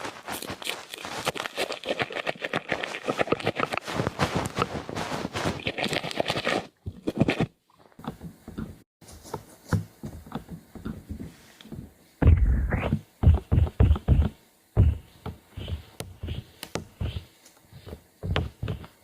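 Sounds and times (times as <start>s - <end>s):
taps and scrapes: 0.0s - 19.0s
heavy muffled low thumps: 12.2s - 15.1s.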